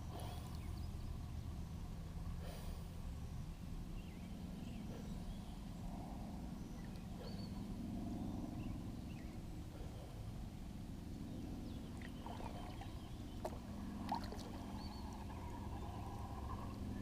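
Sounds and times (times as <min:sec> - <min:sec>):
low rumble of water and wind: 0:00.0 - 0:17.0
birds chirping and whistling: 0:06.8 - 0:07.6, 0:14.6 - 0:17.0.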